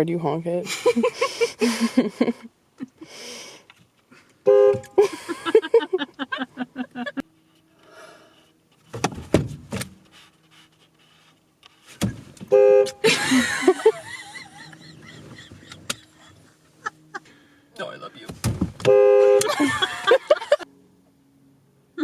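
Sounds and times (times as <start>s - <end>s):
car horn honk: 4.4s - 5.0s, 12.5s - 13.1s, 18.8s - 20.2s
faint steady hum: 10.0s - 22.0s.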